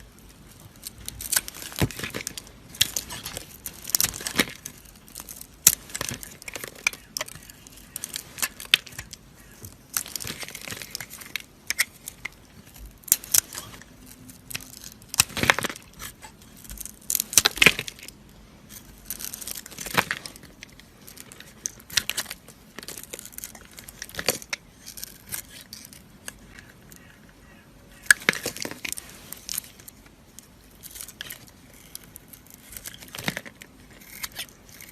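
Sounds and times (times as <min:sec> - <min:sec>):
dry soap crunching under blade: 0:00.2 - 0:34.9.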